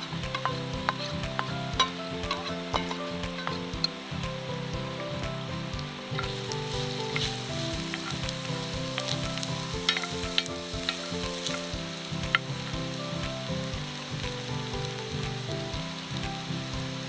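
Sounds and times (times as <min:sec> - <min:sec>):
food sizzling in a pan: 0:00.0 - 0:17.0
soft background music: 0:00.0 - 0:17.0
stirring scrapes and clicks: 0:00.2 - 0:03.7, 0:06.2 - 0:11.7.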